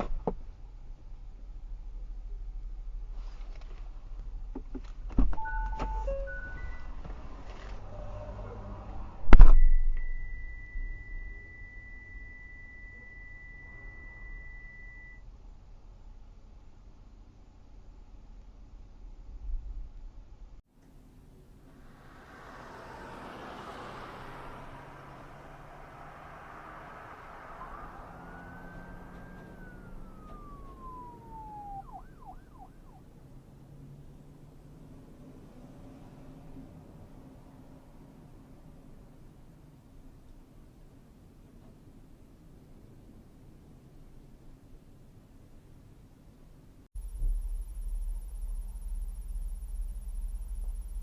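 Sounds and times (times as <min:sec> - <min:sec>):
car road and engine noise: 0:00.0 - 0:51.0
high-pitched beep: 0:05.4 - 0:06.9, 0:09.5 - 0:15.2
emergency vehicle siren: 0:21.7 - 0:33.4.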